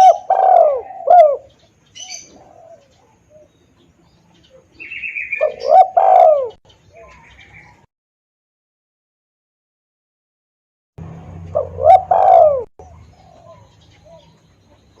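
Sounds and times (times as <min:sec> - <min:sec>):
dove cooing: 0:00.0 - 0:07.8, 0:11.4 - 0:15.0
small birds chirping: 0:00.0 - 0:07.9, 0:11.0 - 0:15.0.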